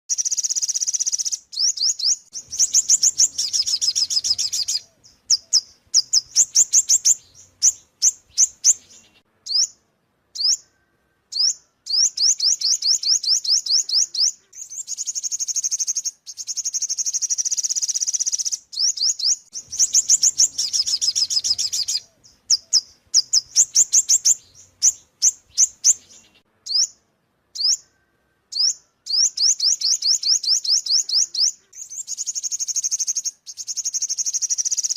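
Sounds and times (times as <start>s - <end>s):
bird chirping high thin notes: 0.1s - 9.8s, 17.4s - 27.0s.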